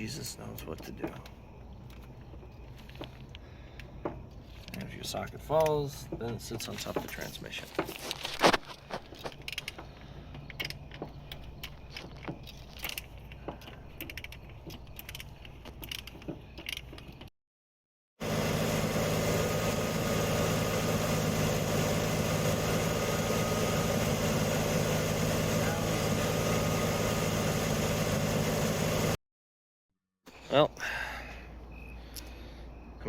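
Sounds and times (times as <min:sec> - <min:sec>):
metal clicks of hand tools: 0:09.2 - 0:17.3
truck engine idling: 0:18.2 - 0:29.2.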